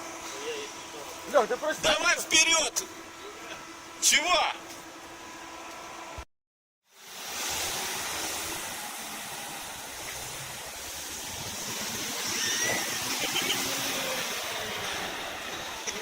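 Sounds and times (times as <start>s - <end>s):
vehicle engine running: 0.0s - 6.2s, 7.0s - 16.0s
broad even hiss: 6.9s - 16.0s.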